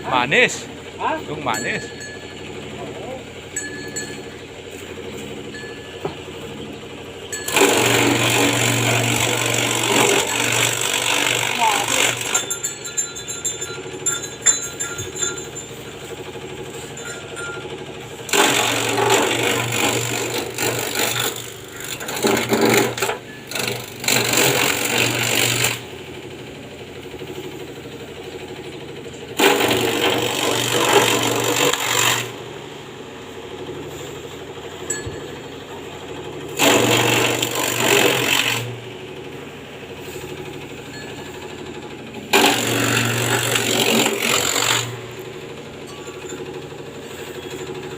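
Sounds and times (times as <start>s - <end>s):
chaff cutter running: 0.0s - 47.9s
loud chopping of grass: 7.3s - 13.0s, 18.2s - 25.8s, 29.3s - 32.5s, 36.4s - 38.9s, 42.2s - 46.1s.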